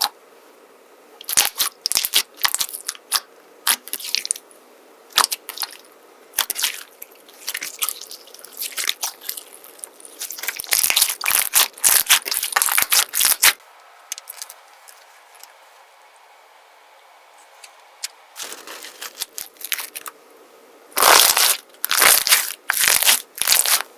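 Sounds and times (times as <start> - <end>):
slime crackling and popping: 1.2 - 4.4, 5.1 - 5.8, 6.4 - 14.6, 21.0 - 23.9.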